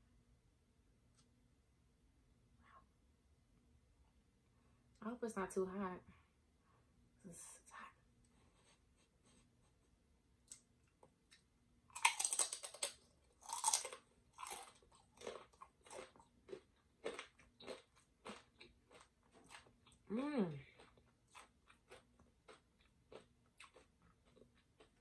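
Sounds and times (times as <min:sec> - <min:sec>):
chip crunching and chewing: 0:10.4 - 0:25.0.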